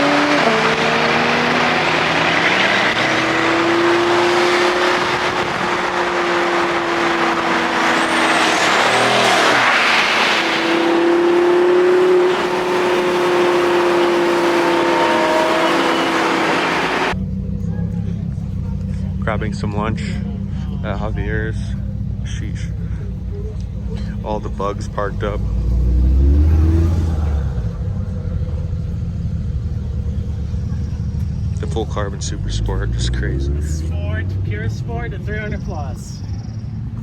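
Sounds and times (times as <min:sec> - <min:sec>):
rushing noise: 0:00.0 - 0:17.2
car engine running: 0:00.0 - 0:37.0
road noise: 0:00.0 - 0:37.0.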